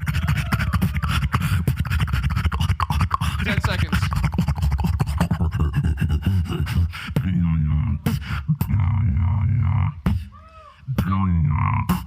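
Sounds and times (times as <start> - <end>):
beatboxing into a microphone: 0.0 - 12.0.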